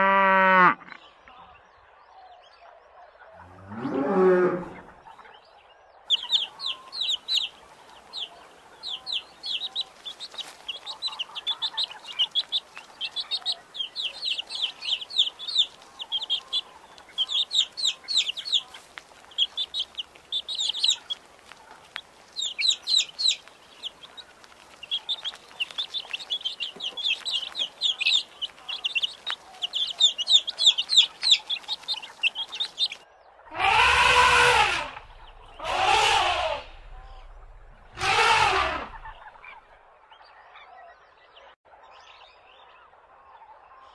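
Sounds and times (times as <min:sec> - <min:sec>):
quail chicks peeping: 0:04.7 - 0:41.0
elephant call: 0:33.5 - 0:35.0, 0:35.6 - 0:37.2, 0:37.9 - 0:39.1.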